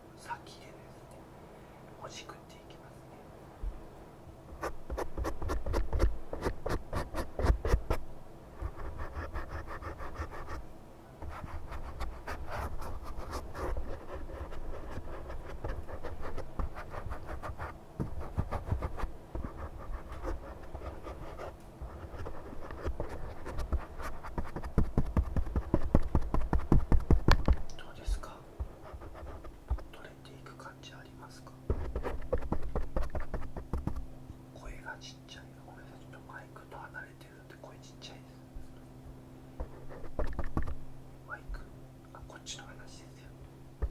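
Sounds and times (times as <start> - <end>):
close scratching and crackling: 4.5 - 8.0, 8.6 - 10.6, 11.2 - 30.6, 31.7 - 34.1, 39.6 - 40.8.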